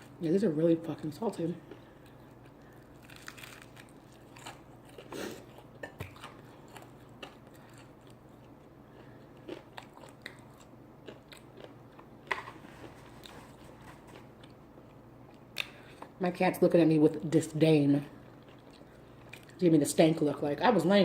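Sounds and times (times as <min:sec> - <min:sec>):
person chewing and biting food: 0:01.6 - 0:16.1.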